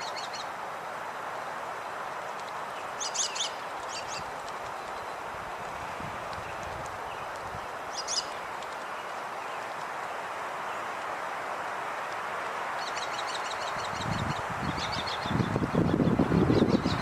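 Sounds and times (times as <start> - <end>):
small birds chirping: 0.0 - 0.6, 1.3 - 11.2, 12.0 - 17.0
outdoor background hiss: 0.0 - 17.0.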